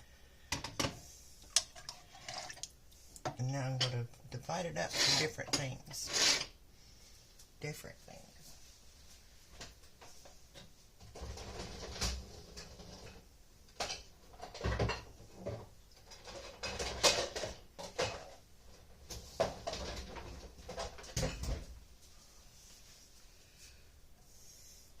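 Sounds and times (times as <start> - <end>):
dishes and utensils clattering: 13.8 - 18.4, 19.1 - 21.7.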